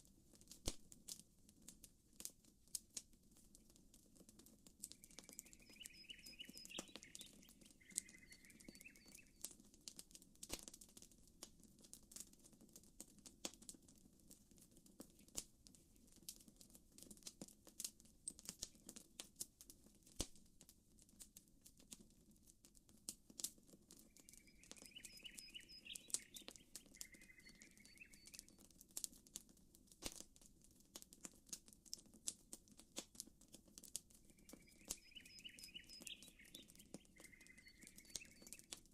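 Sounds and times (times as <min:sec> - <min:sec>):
campfire crackling: 0:00.0 - 0:38.9
bird chirping: 0:05.0 - 0:09.4, 0:24.0 - 0:28.6, 0:34.3 - 0:38.8.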